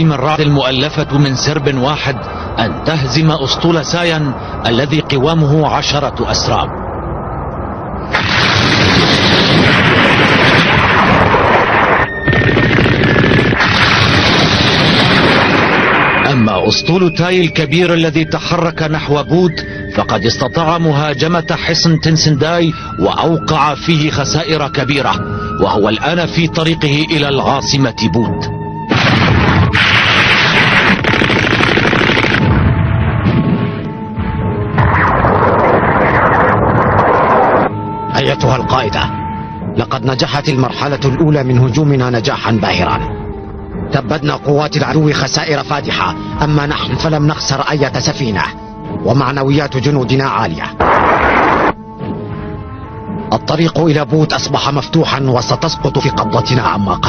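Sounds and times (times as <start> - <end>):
background music: 0.0 - 57.0
gunfire: 8.1 - 11.9, 12.6 - 16.3, 28.9 - 33.8, 50.8 - 51.7
explosions: 8.1 - 16.5, 28.9 - 37.7, 50.8 - 51.8
rapid gunfire: 29.0 - 32.5.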